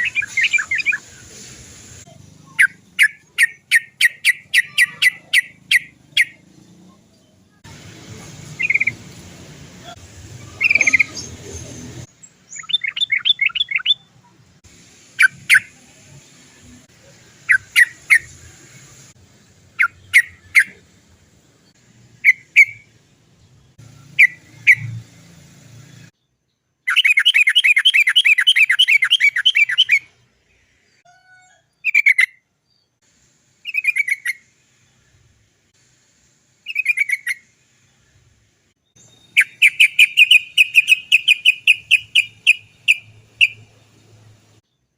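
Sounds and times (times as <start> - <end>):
bulbul singing: 0.0 - 1.2, 2.0 - 7.7, 8.4 - 9.2, 9.8 - 14.3, 17.0 - 18.8, 19.7 - 20.8, 21.5 - 25.2, 26.1 - 31.0, 33.6 - 35.1, 36.6 - 38.2, 38.8 - 44.9.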